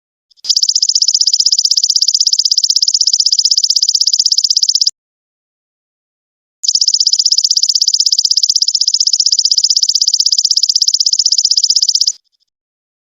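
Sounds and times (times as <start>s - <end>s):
insect buzzing trill: 6.6s - 12.2s.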